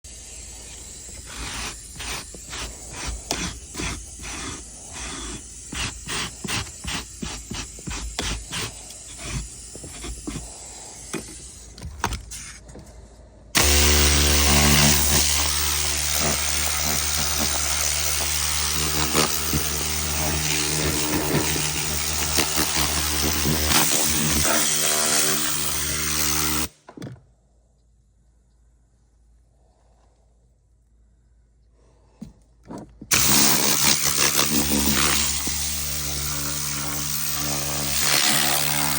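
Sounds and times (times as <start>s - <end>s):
motorized detailing tool humming: 0.1s - 12.3s, 13.6s - 26.7s, 33.1s - 38.9s.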